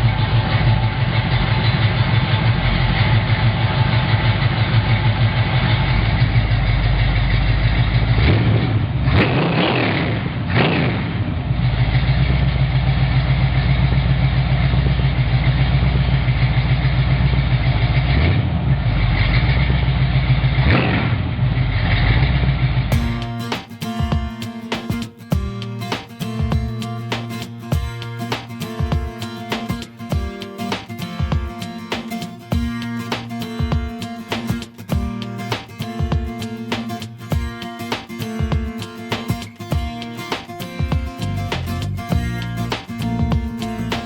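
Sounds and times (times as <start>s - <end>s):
car engine rumbling: 0.0s - 9.5s, 10.1s - 23.5s, 41.2s - 44.0s.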